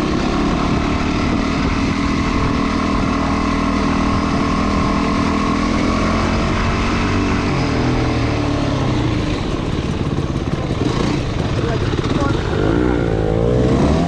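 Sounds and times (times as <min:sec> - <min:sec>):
motorcycle engine running: 0:00.0 - 0:14.0
wind noise: 0:00.0 - 0:14.0.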